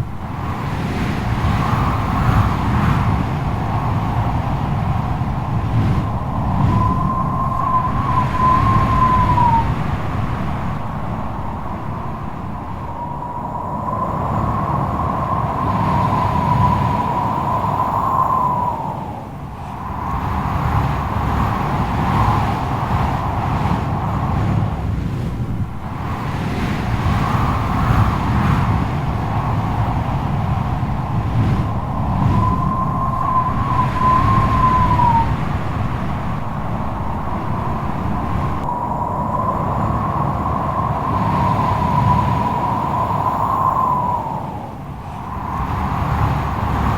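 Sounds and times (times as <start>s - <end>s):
howling wind whistle: 0.0s - 46.9s
strong wind gusting: 0.0s - 46.9s
wavering whistle: 6.6s - 9.8s, 31.7s - 35.4s.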